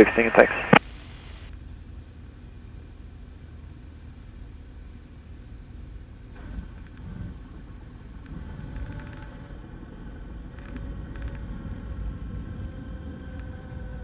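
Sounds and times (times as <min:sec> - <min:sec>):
faint clicks: 0:00.0 - 0:09.5
small plane engine rumble: 0:00.0 - 0:09.5.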